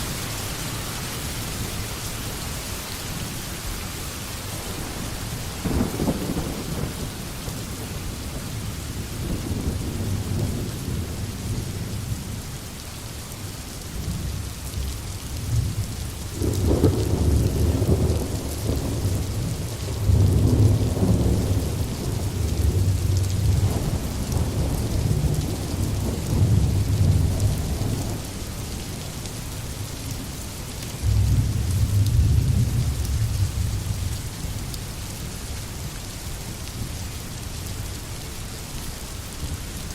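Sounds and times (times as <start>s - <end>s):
steady rain falling: 0.0s - 39.9s
low rolling thunder: 4.6s - 12.4s, 14.0s - 28.8s, 30.3s - 34.7s.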